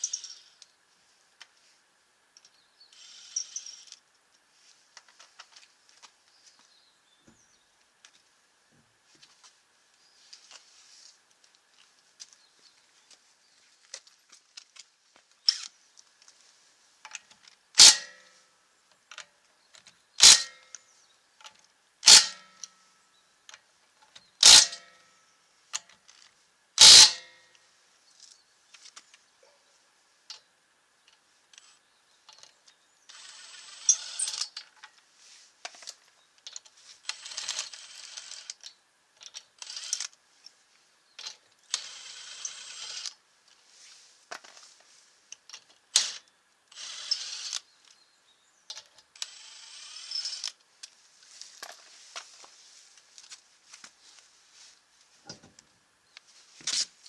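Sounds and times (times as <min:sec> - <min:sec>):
faint rattling and rustling: 0:50.9 - 0:57.0.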